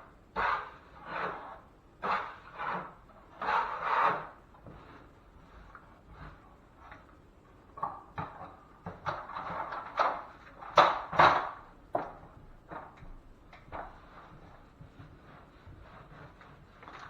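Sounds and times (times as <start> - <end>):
taping knife scraping joint compound: 0.3 - 7.1.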